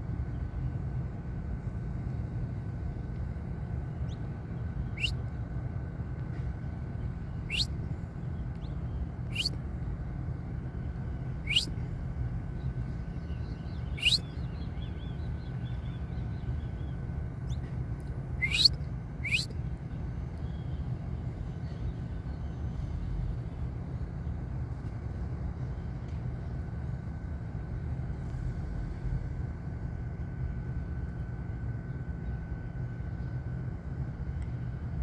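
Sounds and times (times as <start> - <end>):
finch chirping: 9.3 - 9.5, 11.5 - 11.7, 14.0 - 14.2, 18.4 - 19.5.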